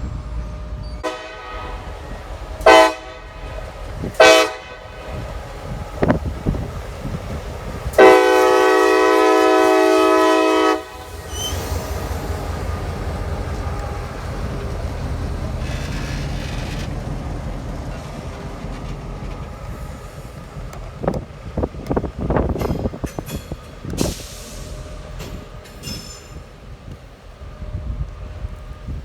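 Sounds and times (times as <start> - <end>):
train rumbling past: 0.0 - 29.0
locomotive air horn blast: 1.0 - 6.8, 7.9 - 16.8.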